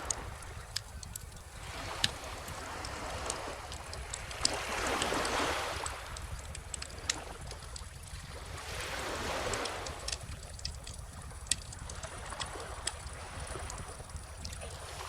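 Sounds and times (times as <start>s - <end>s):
calm ocean waves: 0.0s - 15.0s
wood fire crackling and popping: 0.0s - 15.0s.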